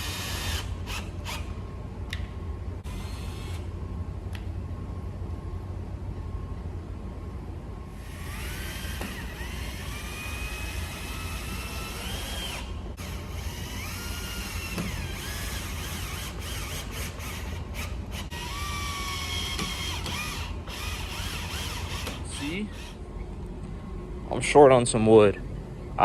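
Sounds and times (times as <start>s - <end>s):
power drill driving screws: 0.0s - 1.5s, 8.0s - 23.0s.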